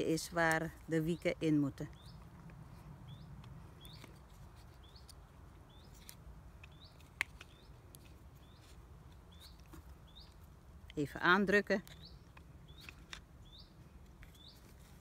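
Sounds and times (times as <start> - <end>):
small bird chirping: 1.9 - 10.5, 11.8 - 15.0.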